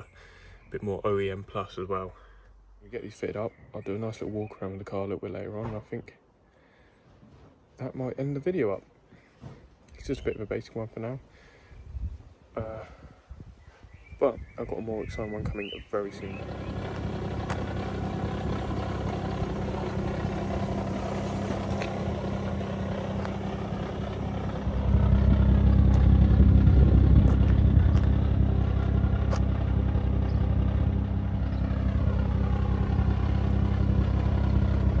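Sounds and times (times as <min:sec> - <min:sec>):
car engine idling: 0:16.1 - 0:35.0.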